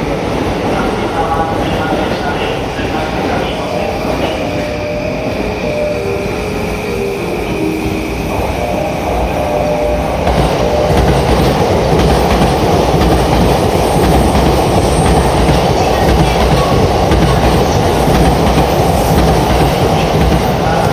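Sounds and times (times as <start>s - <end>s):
train wheels rushing on rail: 0.0s - 20.9s
train clatter: 8.7s - 20.9s.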